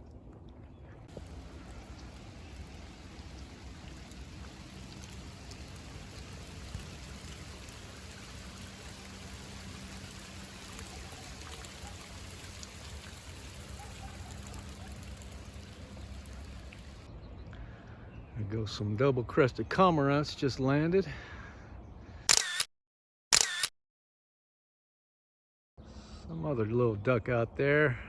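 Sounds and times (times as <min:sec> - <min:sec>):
faint raindrop ticks: 0:01.1 - 0:12.7
light rain falling: 0:01.1 - 0:17.1.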